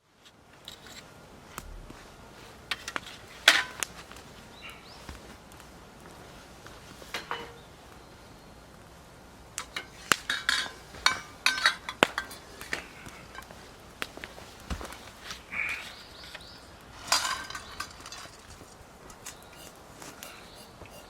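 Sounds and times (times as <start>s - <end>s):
dishes and utensils clinking: 7.1s - 7.6s, 9.8s - 12.4s, 19.1s - 21.0s.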